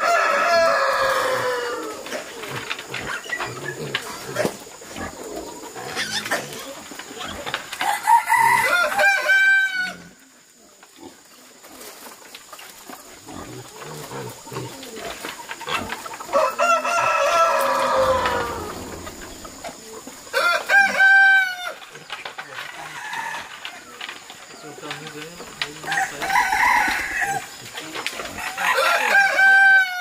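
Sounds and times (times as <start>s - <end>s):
rooster crowing: 0.0s - 2.1s, 7.8s - 10.0s, 16.3s - 21.8s, 25.9s - 27.5s, 28.4s - 30.0s.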